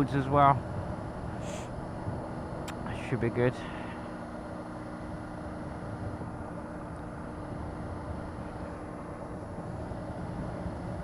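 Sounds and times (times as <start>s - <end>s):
motorcycle running: 0.0s - 11.0s
wind and road noise: 0.0s - 11.0s.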